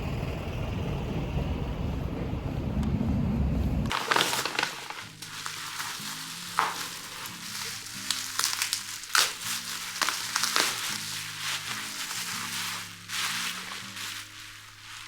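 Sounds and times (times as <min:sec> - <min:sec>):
dense low rumble: 0:00.0 - 0:03.9
crackling packaging rustles: 0:03.9 - 0:15.0
soft background music: 0:03.9 - 0:15.0.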